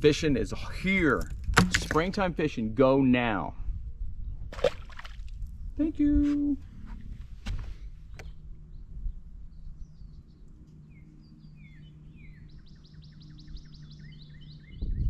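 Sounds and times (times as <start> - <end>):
steady low hum: 3.4 - 15.0
small songbird chirping: 8.1 - 15.0.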